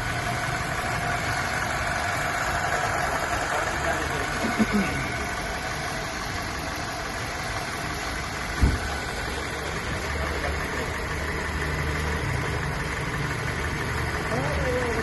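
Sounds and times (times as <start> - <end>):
car engine idling: 0.0 - 15.0
low thump: 8.6 - 8.8.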